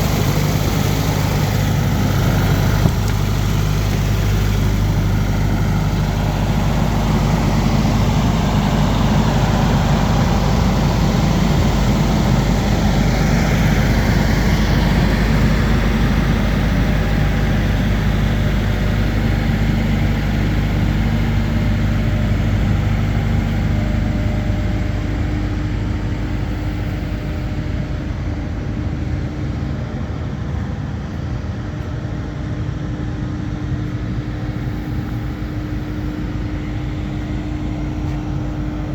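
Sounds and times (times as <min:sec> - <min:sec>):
drilling rig engine running: 0:00.0 - 0:38.9.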